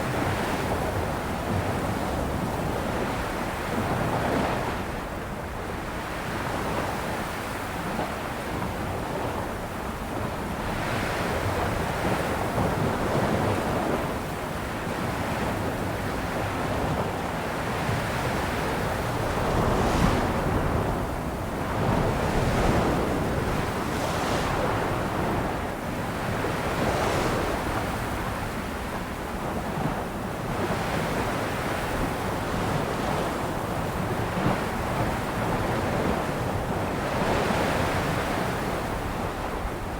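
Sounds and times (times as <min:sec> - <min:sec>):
sea waves breaking on shore: 0:12.6 - 0:39.9
wind on microphone: 0:14.8 - 0:39.9.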